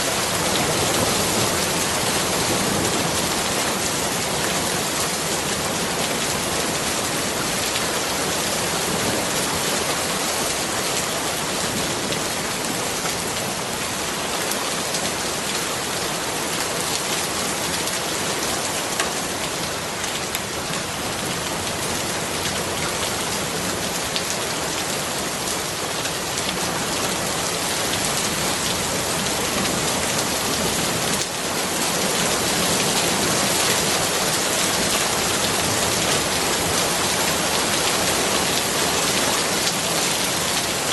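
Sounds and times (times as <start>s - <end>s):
rain pattering on surfaces: 0.0s - 40.9s.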